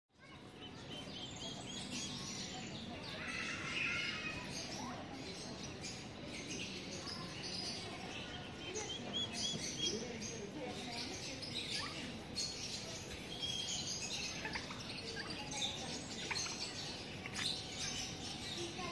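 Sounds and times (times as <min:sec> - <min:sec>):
small birds chirping: 0:00.2 - 0:18.9.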